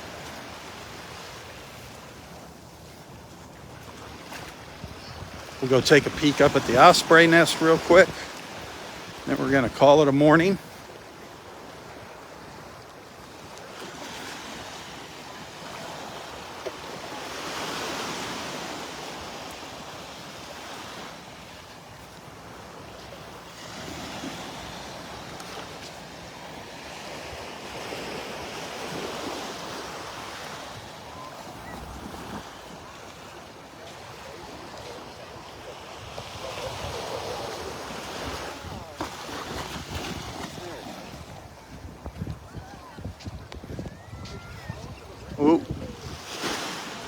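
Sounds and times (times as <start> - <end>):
surf washing onto beach: 0.0 - 47.0
wind buffeting microphone: 41.2 - 46.3.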